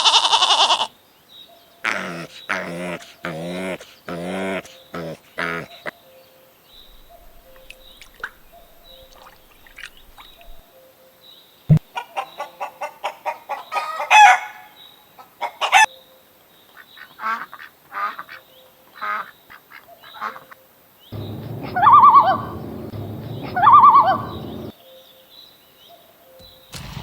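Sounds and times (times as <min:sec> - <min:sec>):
poultry calling: 0:00.0 - 0:01.0, 0:01.8 - 0:06.0, 0:06.8 - 0:10.6, 0:21.2 - 0:24.7.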